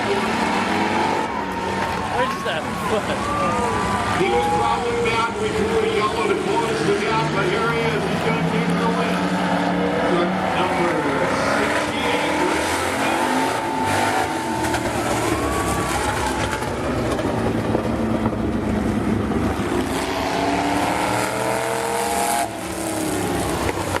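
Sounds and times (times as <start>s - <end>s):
race car engines revving: 0.0s - 24.0s.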